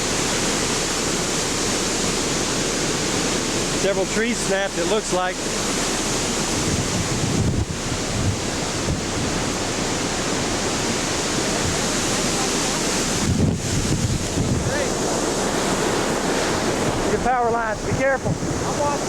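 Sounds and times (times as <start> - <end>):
wind buffeting microphone: 4.8 - 19.0.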